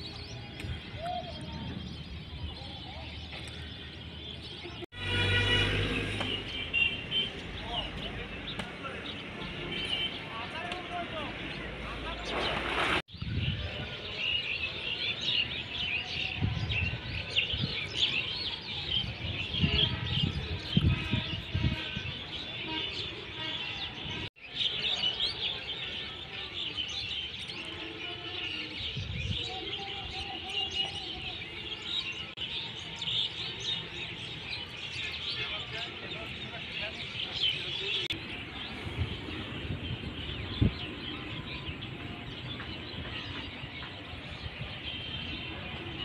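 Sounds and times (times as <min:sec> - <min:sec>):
flock of birds chattering: 0:06.1 - 0:46.0.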